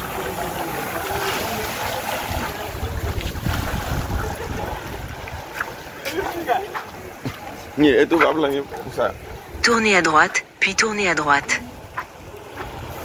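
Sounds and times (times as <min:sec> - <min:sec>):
moving water: 0:00.0 - 0:13.0
wind buffeting microphone: 0:01.0 - 0:09.8.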